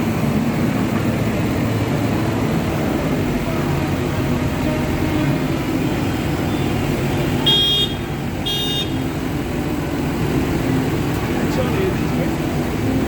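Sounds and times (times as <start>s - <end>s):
tractor engines running: 0.0s - 13.0s.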